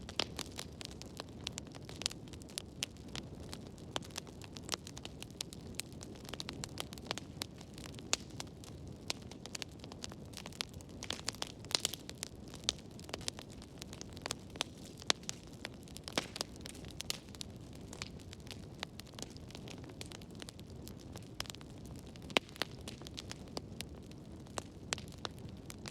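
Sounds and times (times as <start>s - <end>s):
fire crackling and popping: 0.0s - 25.9s
fire rumbling and hissing: 0.0s - 25.9s.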